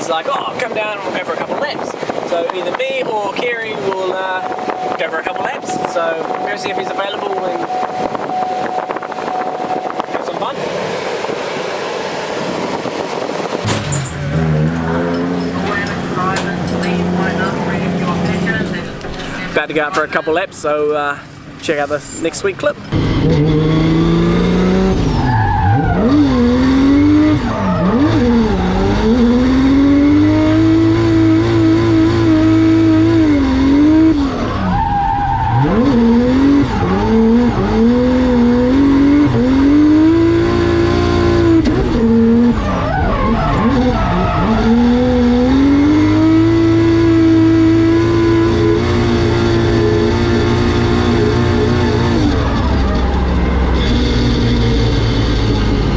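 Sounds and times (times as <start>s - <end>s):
car engine revving hard: 7.6s - 55.9s
tyres squealing: 13.6s - 23.0s.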